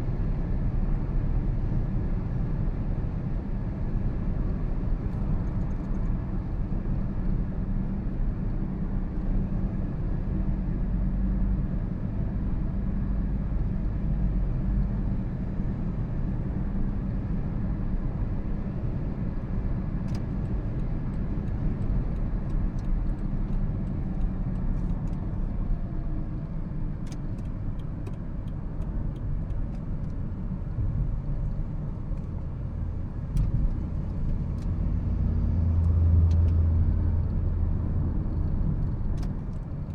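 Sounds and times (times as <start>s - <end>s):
car road and drivetrain noise: 0.0s - 39.9s.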